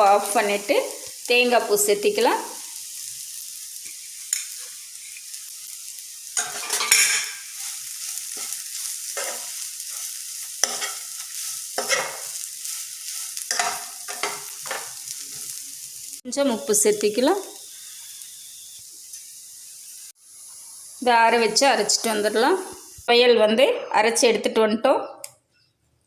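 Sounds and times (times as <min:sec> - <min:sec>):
light sizzle: 0:00.0 - 0:23.2
spatula scraping a pan: 0:03.8 - 0:05.4, 0:06.4 - 0:15.6.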